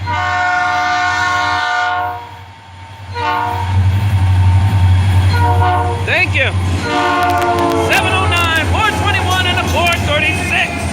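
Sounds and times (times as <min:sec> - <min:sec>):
locomotive air horn blasts: 0:00.0 - 0:02.3, 0:03.1 - 0:03.7, 0:05.3 - 0:06.0, 0:06.8 - 0:08.6
diesel locomotive passing rumble: 0:00.0 - 0:10.9.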